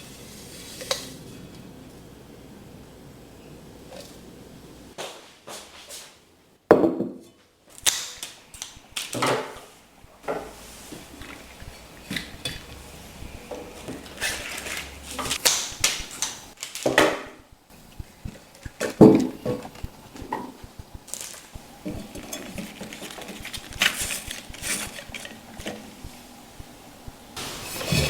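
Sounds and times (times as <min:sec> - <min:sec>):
dishes and utensils clinking: 0:21.8 - 0:26.0, 0:27.4 - 0:28.0.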